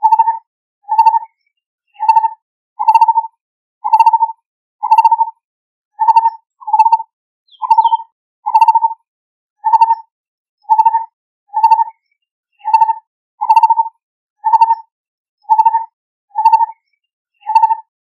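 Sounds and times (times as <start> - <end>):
barbet calling: 6.0 - 8.9.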